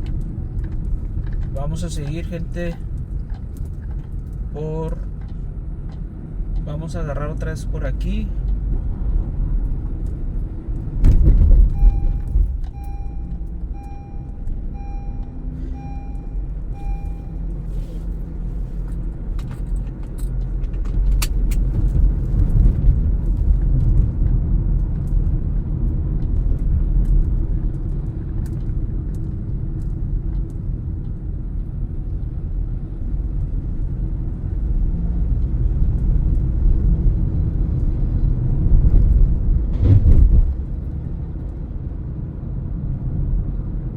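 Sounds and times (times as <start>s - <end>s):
car engine and road rumble: 0.0s - 43.9s
turn signal ticking: 11.5s - 20.5s.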